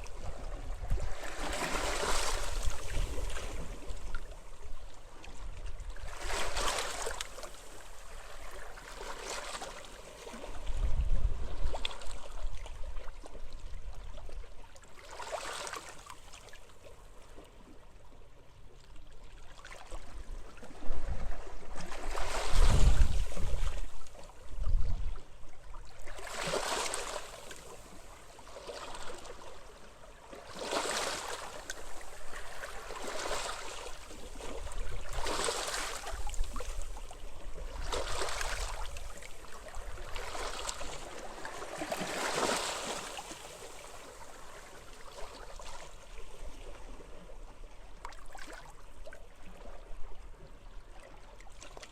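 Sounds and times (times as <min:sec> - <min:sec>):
small waves washing on shore: 0:00.0 - 0:17.8, 0:19.3 - 0:51.9
wind gusts on microphone: 0:10.7 - 0:11.8, 0:20.7 - 0:25.4.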